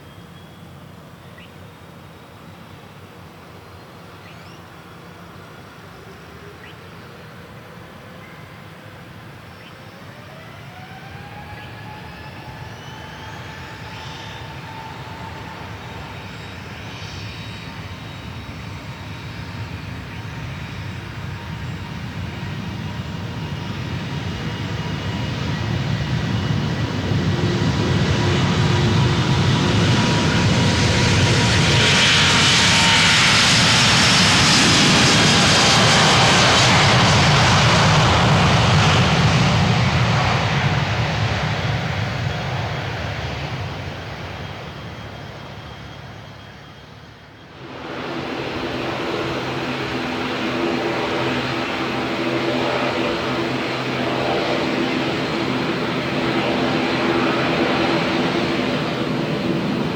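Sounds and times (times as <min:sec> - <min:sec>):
jet engines at takeoff: 0:00.0 - 0:59.9
jet fan whine: 0:47.2 - 0:59.9.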